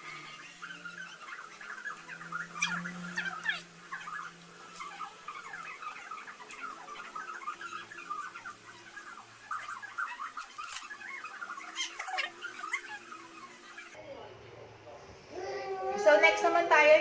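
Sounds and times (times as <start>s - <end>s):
animal chirping and squeaking: 0.0s - 14.0s.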